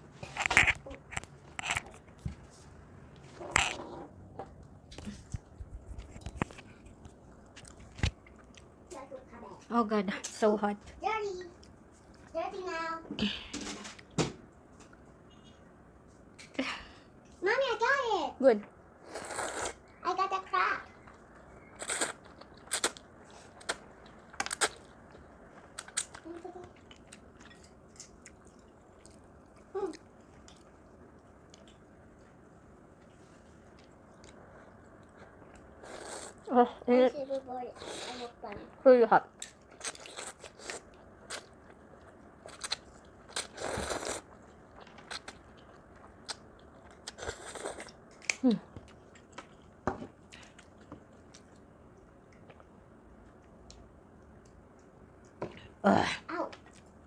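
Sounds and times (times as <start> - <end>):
food crunching while chewed: 0.2 - 2.3, 20.9 - 36.5, 39.3 - 55.6
food crackling: 0.2 - 9.8, 18.5 - 55.4.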